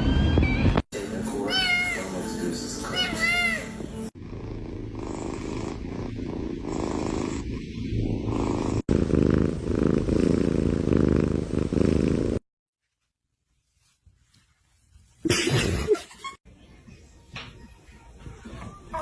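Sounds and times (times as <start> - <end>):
cat purring: 4.1 - 12.4.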